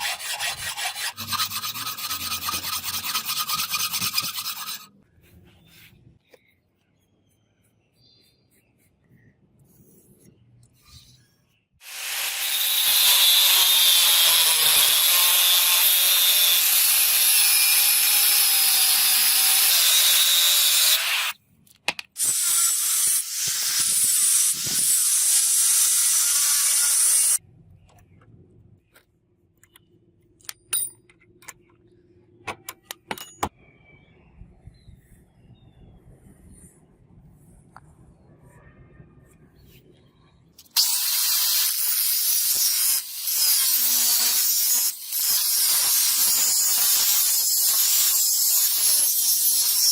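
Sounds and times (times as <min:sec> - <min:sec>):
electric power tool on chain: 0:11.8 - 0:21.4, 0:22.2 - 0:27.4, 0:40.7 - 0:49.9.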